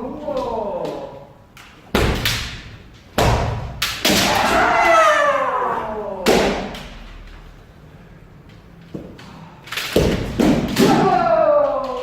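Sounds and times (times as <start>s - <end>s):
bamboo sword strikes: 1.9s - 4.6s
long drawn-out shout: 4.2s - 6.2s, 10.9s - 12.0s.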